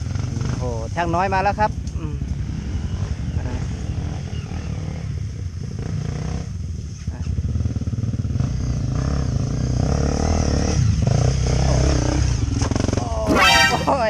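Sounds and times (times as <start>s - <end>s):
dirt bike engine revving: 9.0s - 14.0s.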